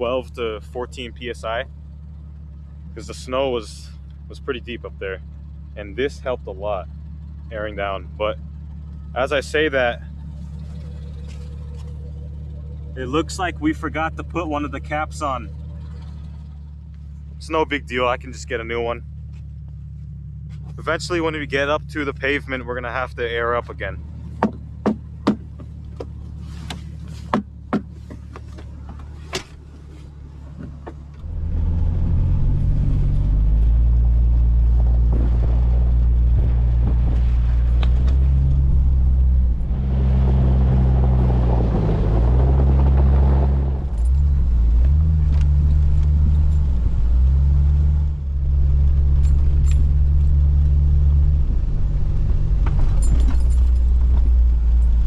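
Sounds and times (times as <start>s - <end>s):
vehicle driving off: 0.0s - 55.0s
vehicle engine idling: 0.0s - 55.0s
sharp clicks and knocks: 24.3s - 31.3s, 34.8s - 38.5s.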